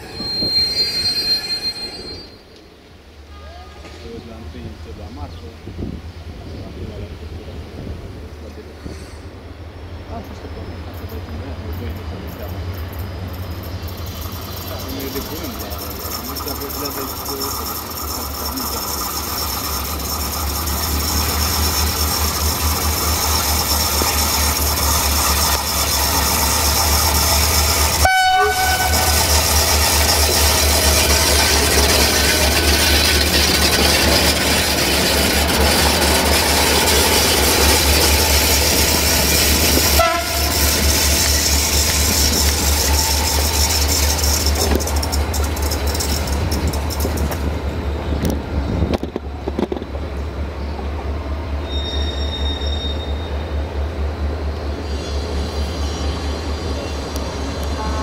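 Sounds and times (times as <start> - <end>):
locomotive rumble: 0.0 - 58.0
wheel and wagon noise: 11.0 - 50.0.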